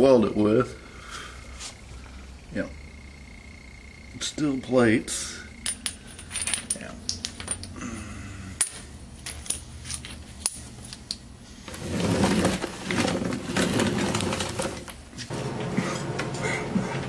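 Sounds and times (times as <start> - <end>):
metal jangling and scraping: 5.6 - 7.7, 8.6 - 11.0
steel parts clinking: 5.6 - 7.8, 8.6 - 11.2.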